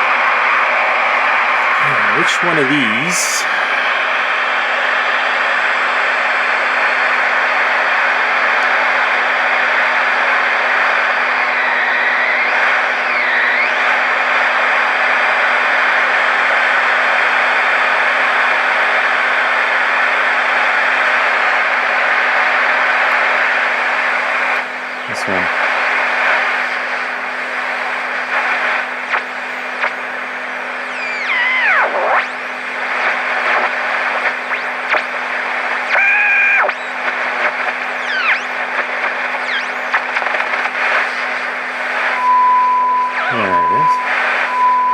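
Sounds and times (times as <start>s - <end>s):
radio static hiss: 1.0s - 4.1s, 22.9s - 42.2s, 43.2s - 44.9s.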